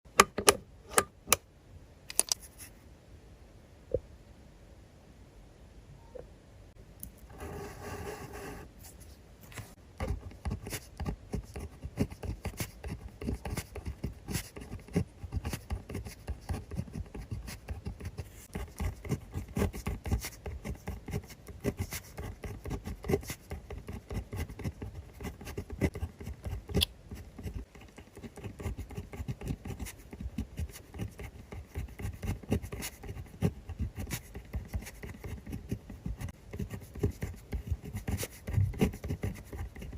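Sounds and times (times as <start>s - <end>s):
pen scratching on paper: 7.3s - 9.0s, 9.6s - 39.9s.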